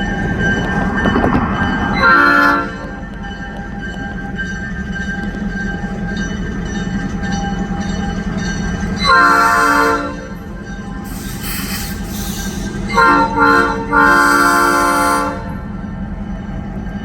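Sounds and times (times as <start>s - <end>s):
diesel locomotive running: 0.0s - 17.0s
locomotive horn blast: 2.0s - 3.1s, 9.0s - 10.5s, 11.1s - 15.7s
air hiss: 11.1s - 12.8s.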